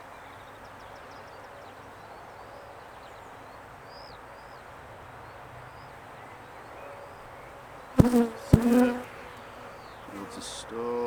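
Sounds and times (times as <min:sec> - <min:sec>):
small birds chirping: 0:00.0 - 0:11.0
honeybees buzzing: 0:08.0 - 0:11.0.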